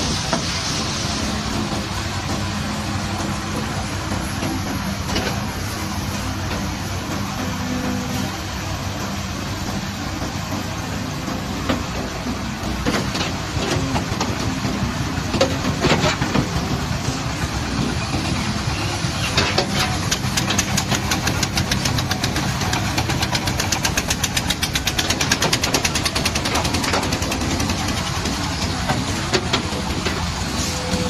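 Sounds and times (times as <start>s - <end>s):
diesel machine running: 0.0s - 31.0s
rapid even clatter: 19.3s - 30.2s.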